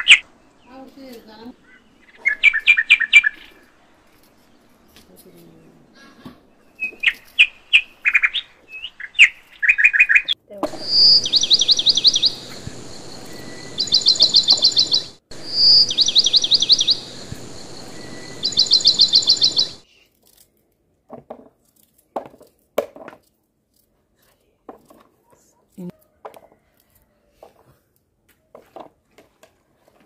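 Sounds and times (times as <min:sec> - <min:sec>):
songbird singing: 0:00.0 - 0:19.8
steady hiss: 0:10.8 - 0:19.8.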